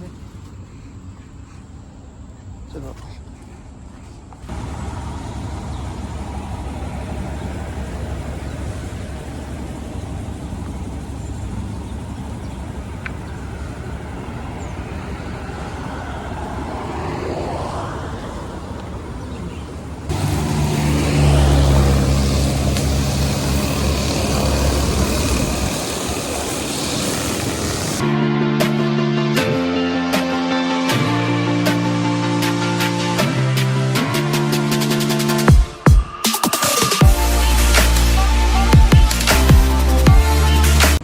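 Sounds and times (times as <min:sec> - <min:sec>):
vehicle engine rumble: 0:00.0 - 0:28.0.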